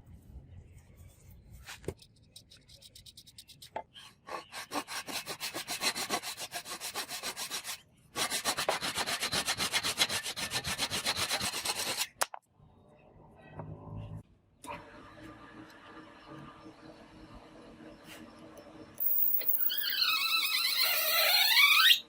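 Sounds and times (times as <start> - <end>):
hand sanding strokes: 4.3 - 12.1.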